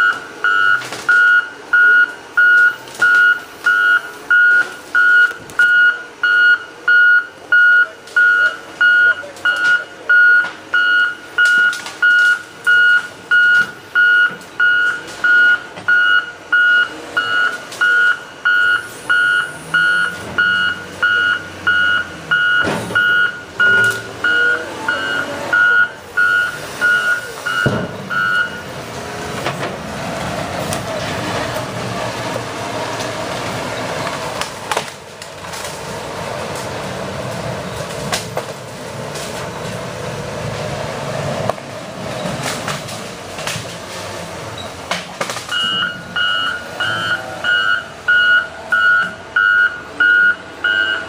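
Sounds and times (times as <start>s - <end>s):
backup alarm beeping: 0.0s - 28.7s, 45.5s - 51.0s
heavy machine engine working: 0.0s - 51.0s.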